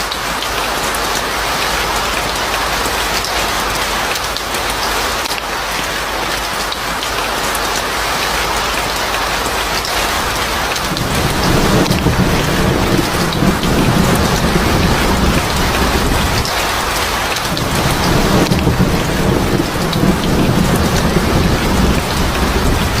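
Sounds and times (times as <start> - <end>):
heavy rain hissing: 7.7 - 23.0
rolling thunder rumble: 9.6 - 23.0.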